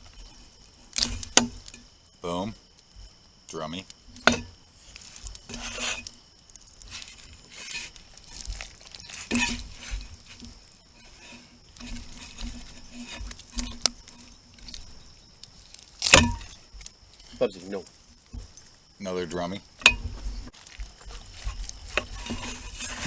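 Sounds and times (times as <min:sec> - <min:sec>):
knife scraping: 0:04.8 - 0:06.1, 0:06.8 - 0:14.9, 0:21.1 - 0:23.0.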